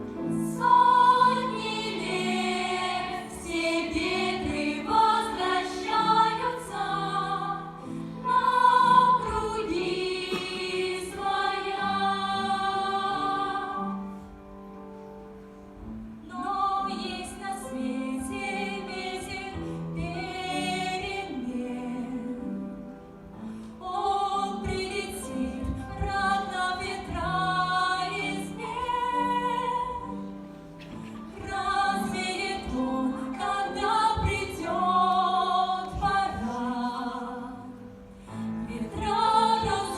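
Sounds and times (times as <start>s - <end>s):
musical backing: 0.0s - 39.9s
voices singing: 0.4s - 14.0s, 31.4s - 37.9s, 38.6s - 39.9s.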